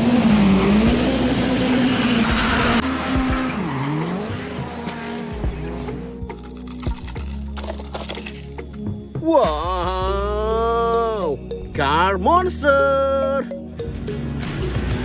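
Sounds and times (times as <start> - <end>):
race car engine: 0.0 - 6.7
background music: 0.0 - 15.0.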